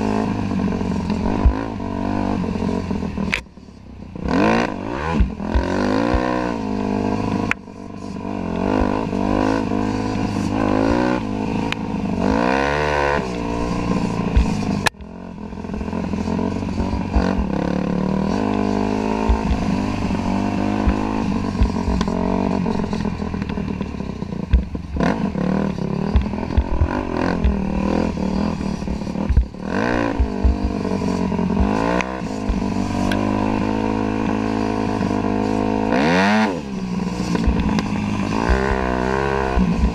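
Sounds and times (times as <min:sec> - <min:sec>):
dirt bike engine revving: 0:00.0 - 0:03.4, 0:04.1 - 0:39.9
bike knocks and rattles: 0:19.1 - 0:33.3.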